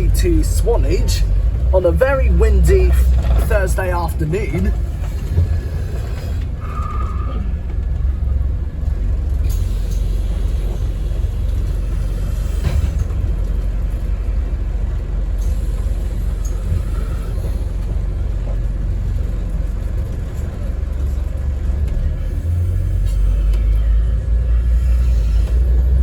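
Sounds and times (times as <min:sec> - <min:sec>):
bus engine and road rumble: 0:00.0 - 0:26.0.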